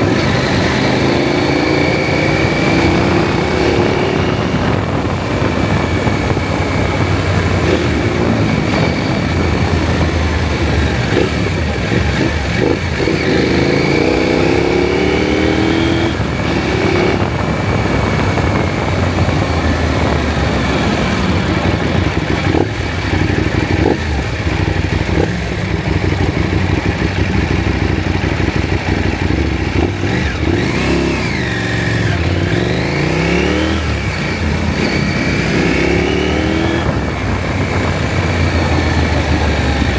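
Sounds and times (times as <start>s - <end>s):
motorcycle engine accelerating: 0.0s - 39.9s
road noise: 0.0s - 39.9s.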